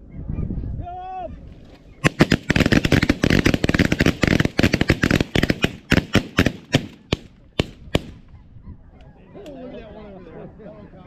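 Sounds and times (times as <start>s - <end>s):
shotgun fire: 2.0s - 8.2s.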